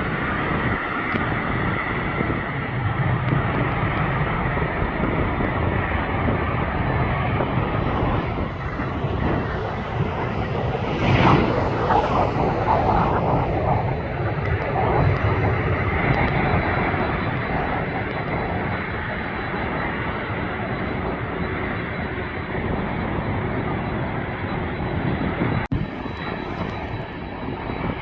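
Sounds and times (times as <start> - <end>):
jet engines rumbling: 0.0 - 28.0
thin high whine: 7.4 - 28.0.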